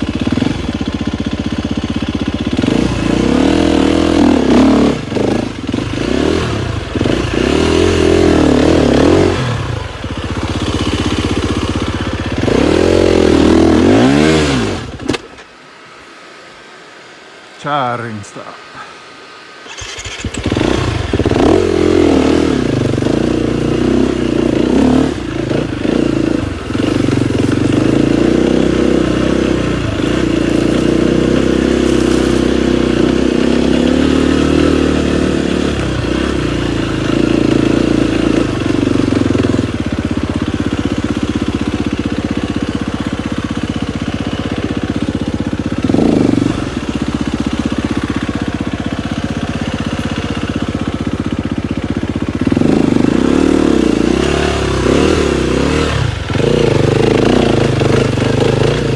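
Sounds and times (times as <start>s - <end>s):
dirt bike engine revving: 0.0s - 15.5s, 19.4s - 58.9s.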